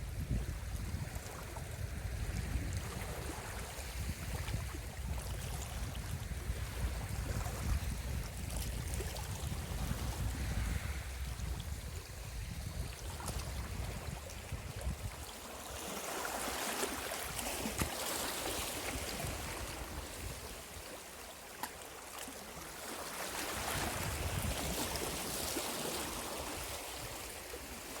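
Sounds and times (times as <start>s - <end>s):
sea waves washing over rocks: 5.9s - 28.0s.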